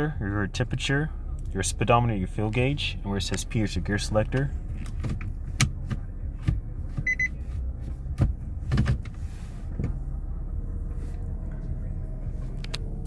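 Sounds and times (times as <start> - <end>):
steady low hum: 0.0 - 13.0
high double beep: 7.1 - 7.3.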